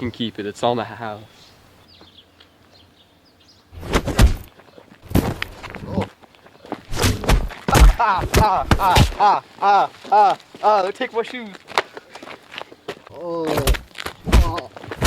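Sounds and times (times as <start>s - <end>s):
heavy thuds and blows: 3.8s - 5.7s, 6.9s - 9.3s, 13.6s - 15.0s
person yelling: 7.7s - 10.9s.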